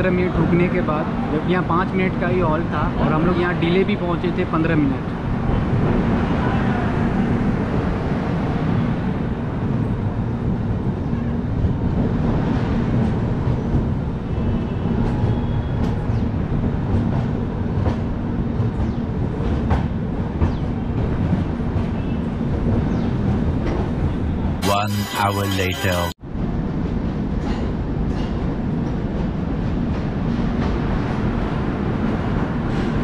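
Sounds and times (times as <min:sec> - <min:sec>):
train coach rumbling on rails: 0:05.0 - 0:24.5, 0:26.4 - 0:33.0.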